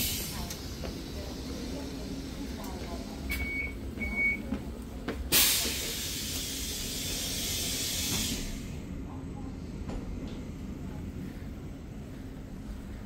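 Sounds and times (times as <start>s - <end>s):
compressed air hissing: 5.3s - 8.8s.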